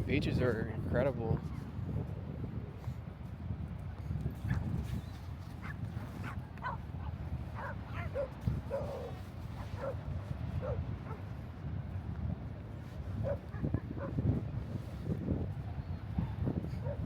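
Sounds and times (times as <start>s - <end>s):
dog barking: 5.6s - 6.8s, 7.6s - 10.0s, 10.6s - 11.2s, 13.2s - 14.2s, 16.8s - 17.0s.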